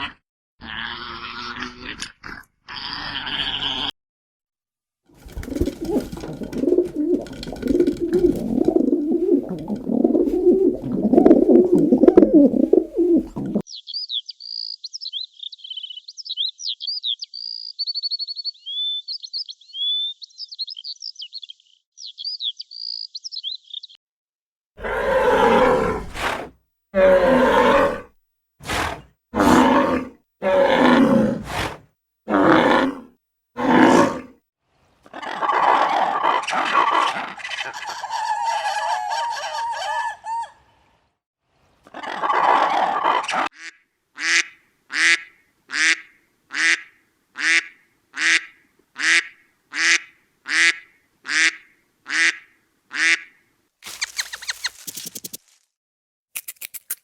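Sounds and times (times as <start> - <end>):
birds chirping and twittering: 13.7 - 24.0, 53.9 - 55.1.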